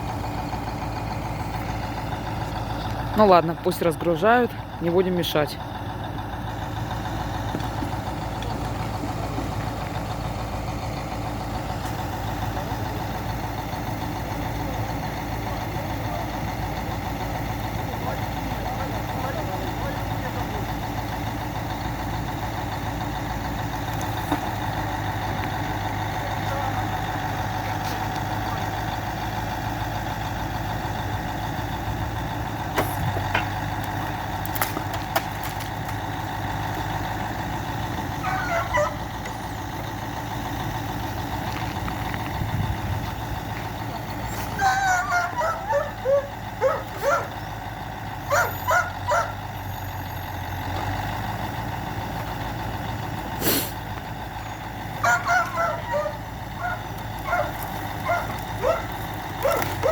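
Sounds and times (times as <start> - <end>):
truck engine idling: 0.0 - 59.9
dog barking and yipping: 38.2 - 39.0, 44.6 - 47.4, 48.2 - 49.4, 55.0 - 59.9.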